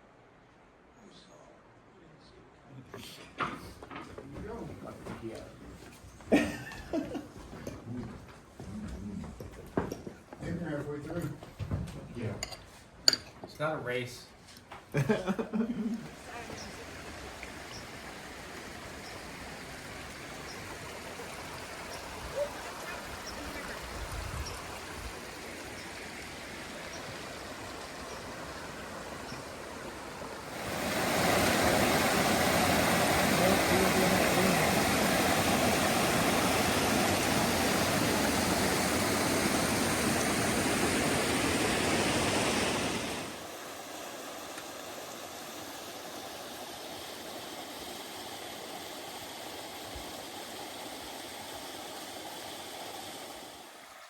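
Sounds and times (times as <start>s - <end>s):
rushing stream water: 16.0s - 54.0s.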